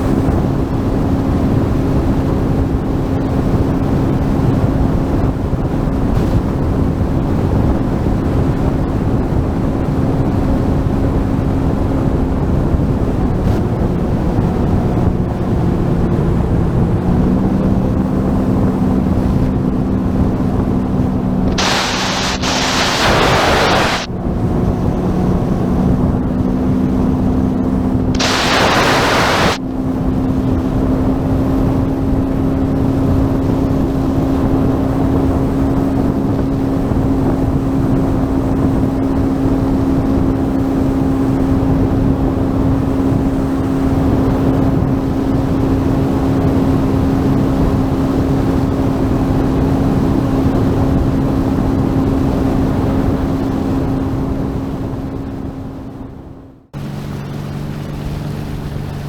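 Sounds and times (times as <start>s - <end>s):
jet ski engine running: 0.0s - 56.2s, 56.8s - 59.0s
water and wind rushing: 0.0s - 59.0s
loud hiss of spray: 21.5s - 24.1s, 28.2s - 29.6s.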